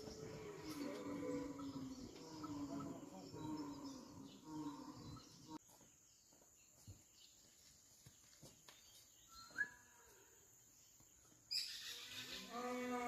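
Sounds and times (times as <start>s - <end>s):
faint bird chirps: 8.8s - 10.5s.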